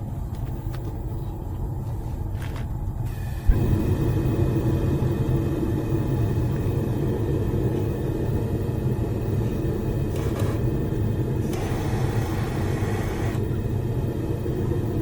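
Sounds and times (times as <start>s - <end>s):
forge rumbling: 3.4s - 10.0s.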